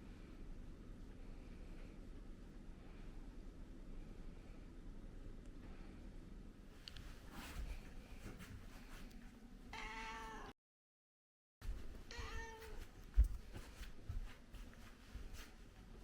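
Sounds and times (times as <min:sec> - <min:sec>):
cat meowing: 0:09.7 - 0:10.6, 0:12.1 - 0:12.8.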